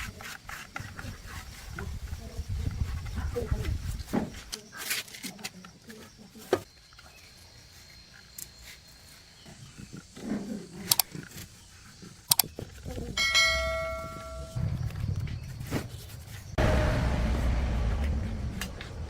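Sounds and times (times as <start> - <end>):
sharp metallic clinks: 13.2 - 14.6
ringing metal tone: 13.2 - 14.8.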